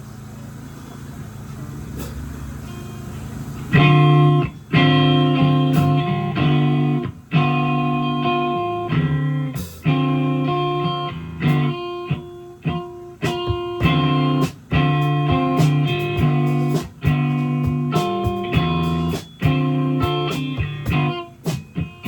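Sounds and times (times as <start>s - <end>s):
electric guitar chords: 2.0s - 22.0s
live band music: 3.7s - 22.0s
sharp drum hits: 5.6s - 6.3s, 13.2s - 21.9s.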